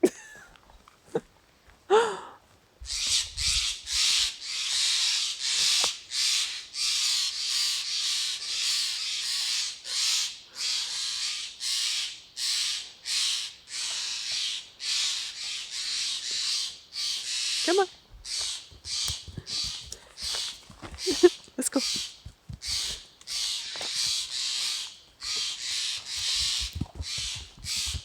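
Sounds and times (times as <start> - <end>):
footsteps crunching: 17.2 - 28.0.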